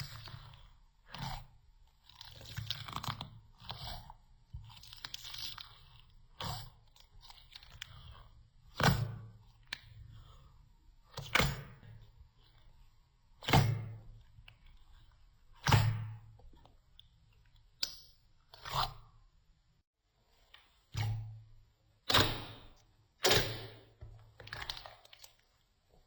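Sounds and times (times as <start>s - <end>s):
sharp slime snaps: 22.1s - 23.9s.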